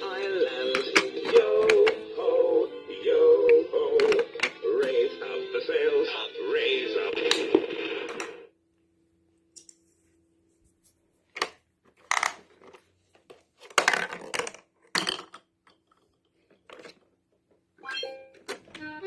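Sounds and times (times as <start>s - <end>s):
plastic toy parts clattering: 0.5s - 2.0s, 3.9s - 4.6s, 11.4s - 17.1s.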